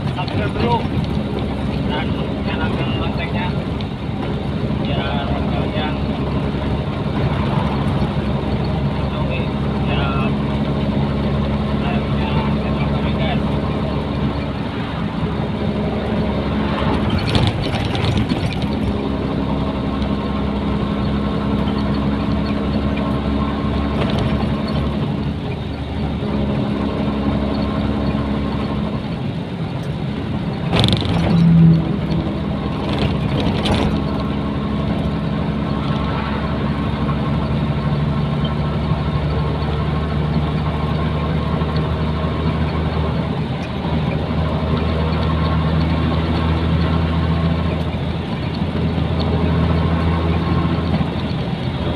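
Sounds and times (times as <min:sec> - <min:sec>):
truck diesel engine running: 0:00.0 - 0:51.9
short clatters: 0:16.6 - 0:19.4, 0:29.8 - 0:36.4.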